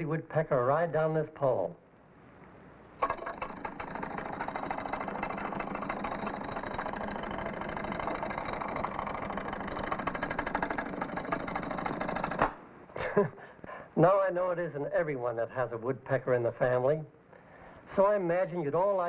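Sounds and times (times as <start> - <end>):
rapid machine-like rattle: 3.0 - 13.1.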